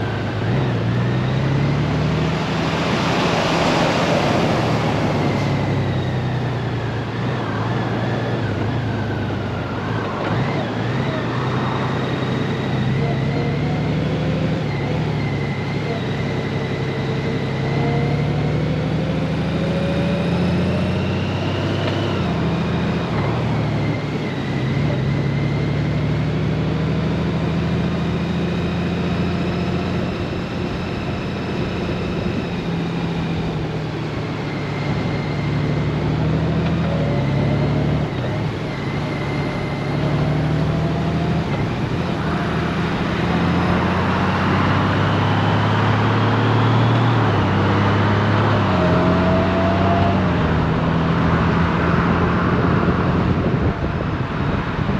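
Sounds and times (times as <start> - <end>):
wind and road noise: 0.0 - 54.9
rush of noise: 2.2 - 12.5.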